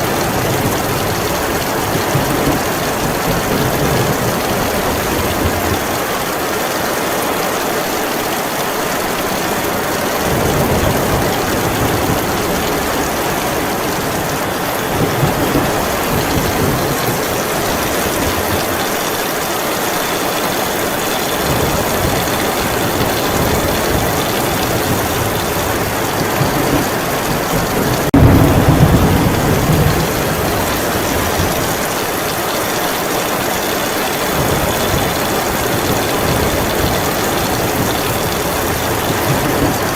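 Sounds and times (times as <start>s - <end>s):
distant thunder rumbling: 0.0s - 6.4s, 9.3s - 39.9s
heavy rain falling: 0.0s - 39.9s
loud thunder clap: 10.3s - 19.0s, 21.3s - 32.4s, 33.6s - 39.9s.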